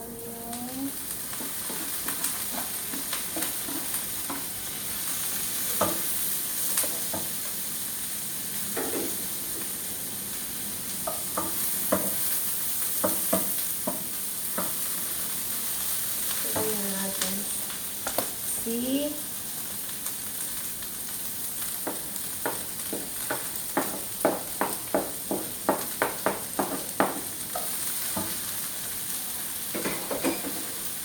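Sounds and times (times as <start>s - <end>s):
onion sizzling in oil: 0.0s - 31.0s
spatula scraping and clicking on pan: 1.3s - 4.5s.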